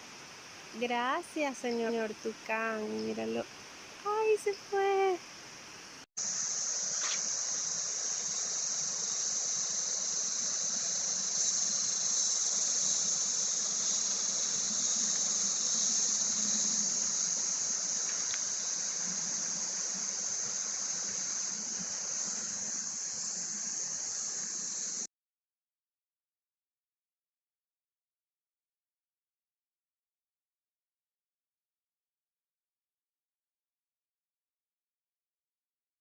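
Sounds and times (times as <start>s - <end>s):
high-pitched insect drone: 6.2s - 25.1s.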